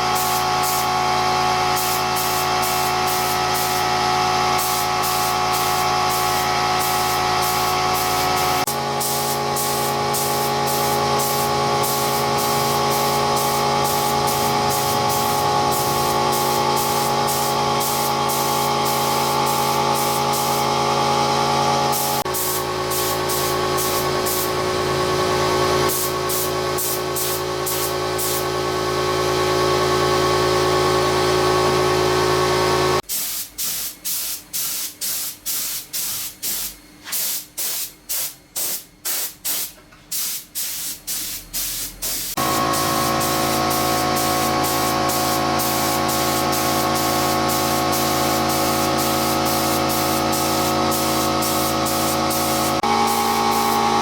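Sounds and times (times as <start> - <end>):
machine hum: 0.0 - 33.0, 42.4 - 54.0
spray hissing: 4.6 - 20.6, 33.1 - 54.0
short spray bursts: 4.6 - 20.7, 21.9 - 24.5, 25.9 - 28.5, 33.1 - 53.9.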